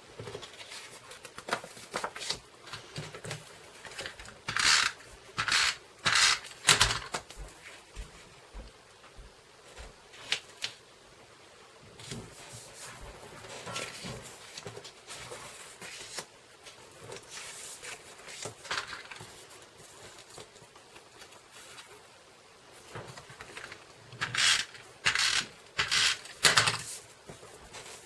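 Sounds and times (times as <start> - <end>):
paper rustling: 0.2 - 5.5, 12.0 - 22.1, 22.7 - 28.0.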